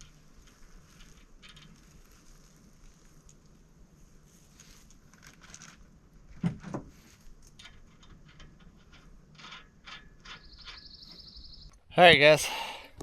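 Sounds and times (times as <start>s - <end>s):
metal hardware clicking and rattling: 7.4s - 10.8s.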